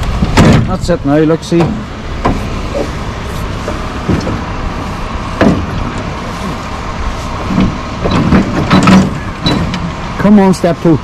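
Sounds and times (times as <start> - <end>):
tractor engine running: 0.0 - 11.0
short knocks: 1.5 - 2.5, 5.4 - 6.0.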